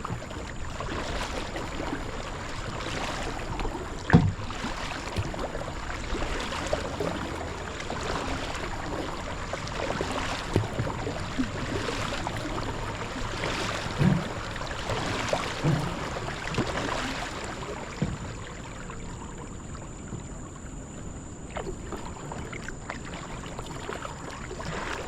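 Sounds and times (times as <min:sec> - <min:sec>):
paddle splashing water: 0:00.0 - 0:25.0
dull knocks: 0:04.1 - 0:04.5.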